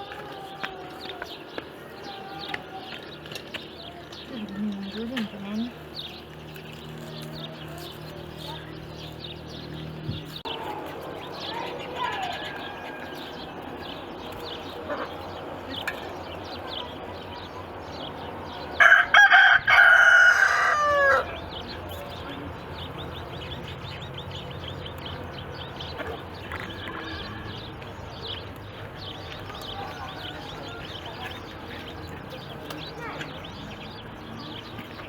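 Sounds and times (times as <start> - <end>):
rooster crowing: 11.4 - 13.9, 18.8 - 21.4, 29.8 - 31.2.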